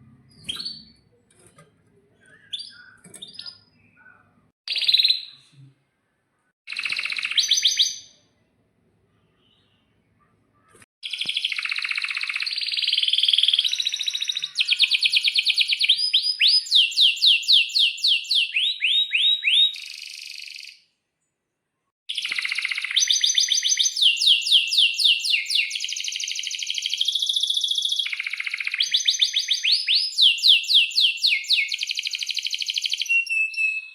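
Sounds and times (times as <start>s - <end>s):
canary singing trills: 22.1s - 33.9s.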